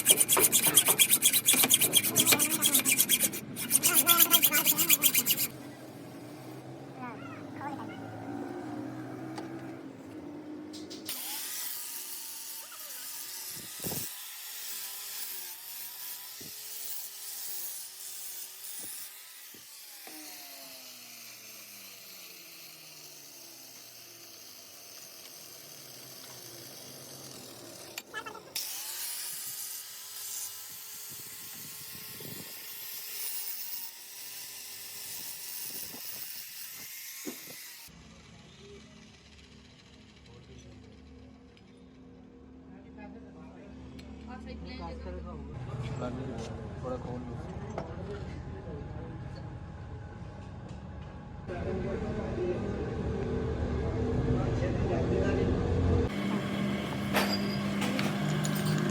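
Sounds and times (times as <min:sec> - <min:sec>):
lathe running: 0:00.0 - 0:05.5, 0:56.1 - 0:58.9.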